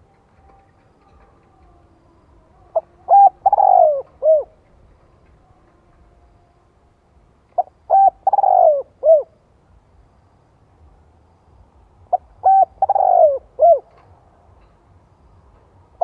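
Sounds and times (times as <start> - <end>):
dove cooing: 0.0 - 4.8, 7.6 - 9.4, 12.1 - 14.0.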